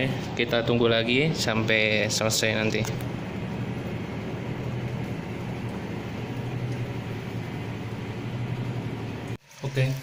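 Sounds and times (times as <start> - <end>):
washing machine spin cycle: 0.0 - 10.0.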